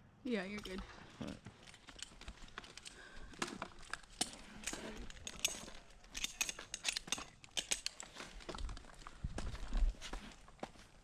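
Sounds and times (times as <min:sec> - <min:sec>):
metal gear clicking and clinking: 0:03.8 - 0:08.1.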